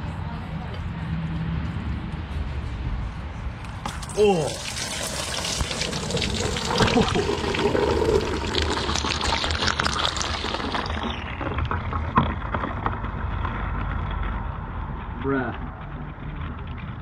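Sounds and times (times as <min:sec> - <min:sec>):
liquid gushing into drain pan: 0:03.9 - 0:12.8.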